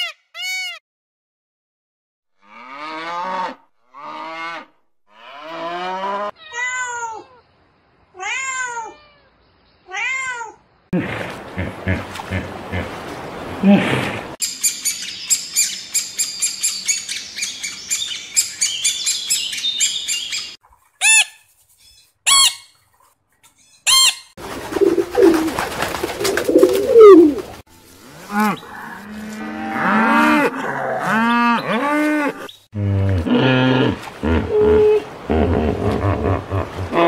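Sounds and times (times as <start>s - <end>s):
pigeons cooing: 24.6s - 27.6s.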